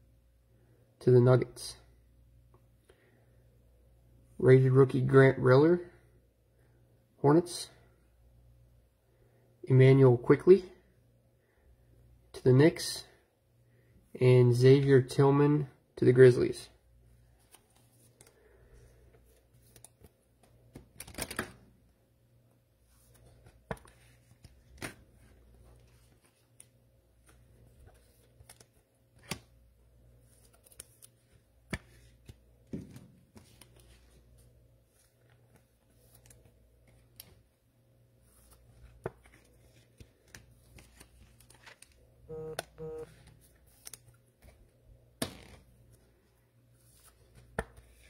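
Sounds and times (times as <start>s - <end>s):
card rustles: 19.0s - 21.6s, 22.9s - 29.6s, 30.2s - 37.5s, 38.2s - 42.1s, 43.1s - 44.7s, 46.8s - 48.0s
cards tapping and clicking: 23.4s - 25.0s, 47.3s - 48.0s.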